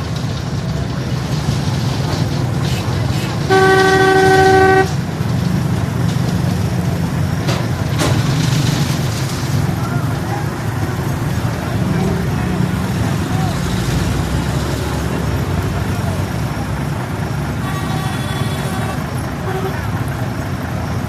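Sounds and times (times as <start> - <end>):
low engine rumble: 0.0 - 21.0
vehicle horn blast: 3.5 - 5.0, 17.6 - 19.9.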